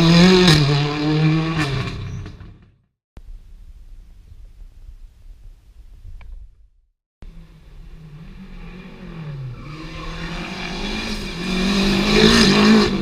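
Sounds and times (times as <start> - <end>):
rally car engine approaching: 7.2 - 13.0.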